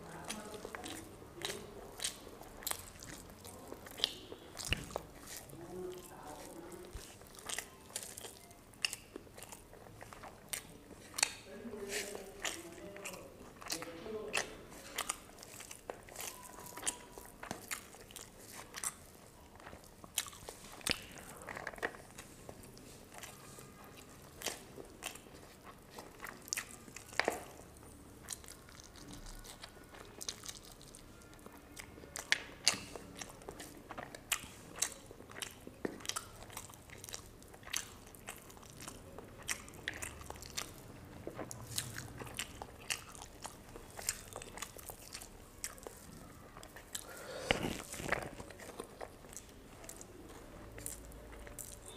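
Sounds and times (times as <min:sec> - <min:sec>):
chewing and crunching food: 0:00.0 - 0:51.9
mouth clicks and smacks: 0:06.9 - 0:11.5, 0:32.2 - 0:51.9.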